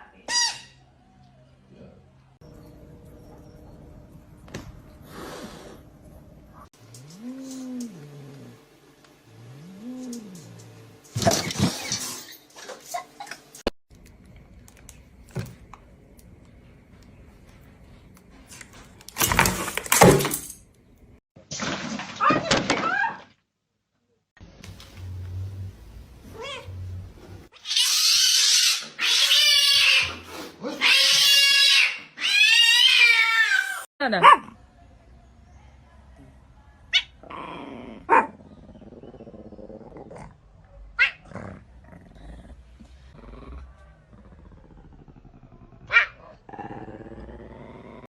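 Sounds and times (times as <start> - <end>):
cat yowling: 26.4 - 26.7, 27.6 - 33.9.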